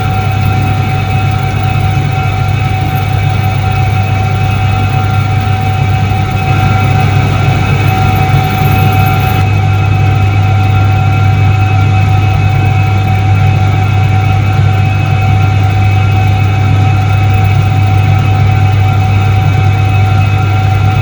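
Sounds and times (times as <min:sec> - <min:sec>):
high-pitched whine: 0:00.0 - 0:21.0
washing machine motor hum: 0:00.0 - 0:21.0.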